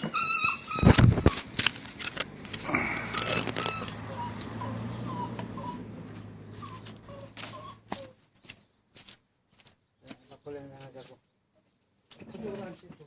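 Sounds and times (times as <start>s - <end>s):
dog whimpering: 0.0s - 1.5s, 2.7s - 8.2s.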